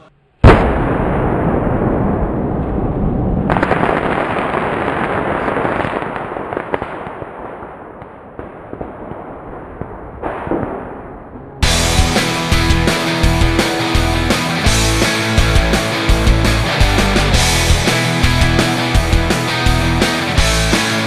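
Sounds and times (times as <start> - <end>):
fireworks crackling and banging: 0.4 - 21.0.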